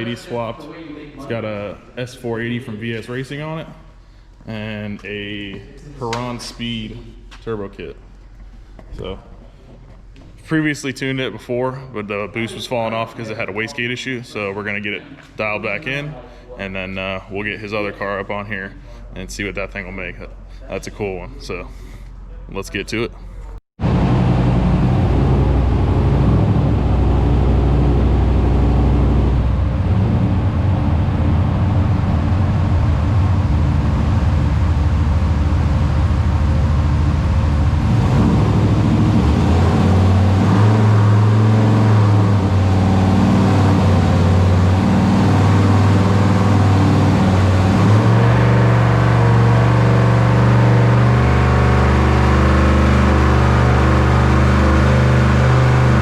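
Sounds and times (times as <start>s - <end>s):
car engine running under load: 23.8s - 56.0s.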